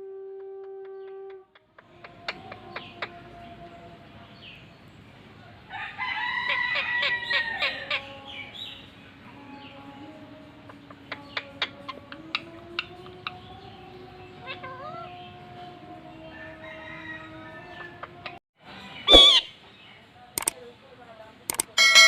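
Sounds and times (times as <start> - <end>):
bird crowing: 5.4 - 8.4, 14.6 - 18.4
sharp clicks: 20.4 - 20.6, 21.5 - 21.8.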